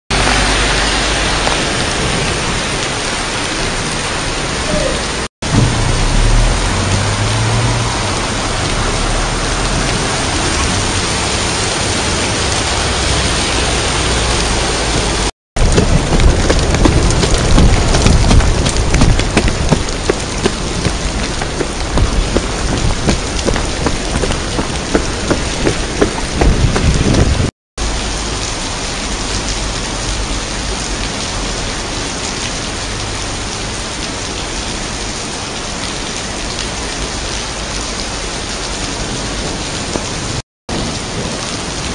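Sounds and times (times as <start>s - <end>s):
heavy rain pouring: 0.1s - 41.9s
low thunder rumble: 4.8s - 11.0s, 15.0s - 27.5s.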